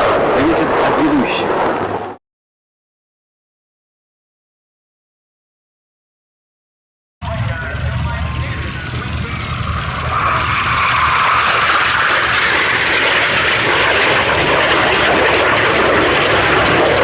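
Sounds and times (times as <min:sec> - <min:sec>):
jet fighter flying past: 0:00.0 - 0:02.2, 0:07.2 - 0:17.0.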